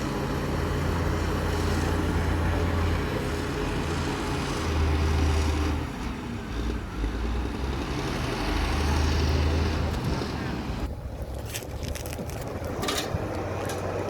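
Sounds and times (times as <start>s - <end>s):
bulldozer diesel engine revving: 0.0s - 10.9s.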